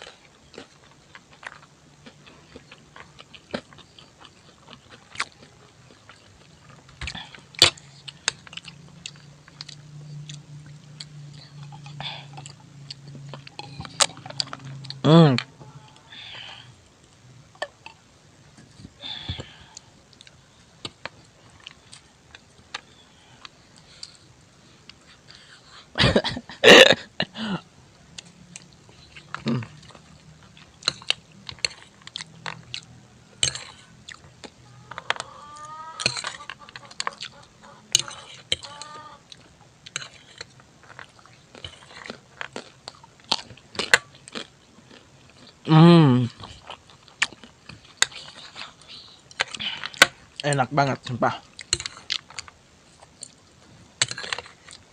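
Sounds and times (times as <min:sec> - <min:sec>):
person chewing: 0:00.0 - 0:25.9, 0:28.2 - 0:54.9.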